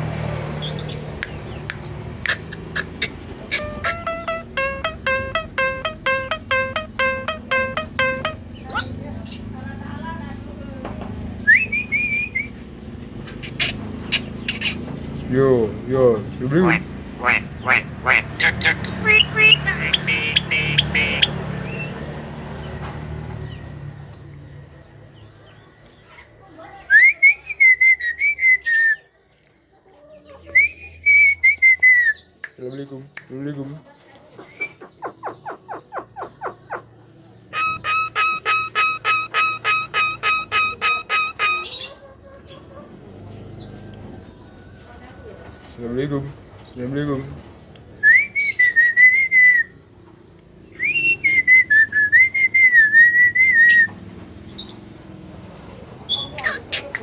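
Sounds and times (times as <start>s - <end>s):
bird whistling warbling tune: 1.2s - 9.0s, 18.4s - 21.4s, 37.5s - 41.8s
myna whistling: 11.5s - 12.6s, 37.6s - 41.8s.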